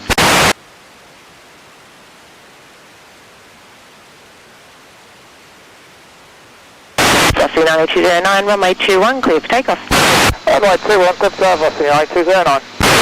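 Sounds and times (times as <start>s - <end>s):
burst of radio static: 0.0s - 0.6s, 7.0s - 13.0s
radio hiss: 0.0s - 0.6s, 7.0s - 13.0s.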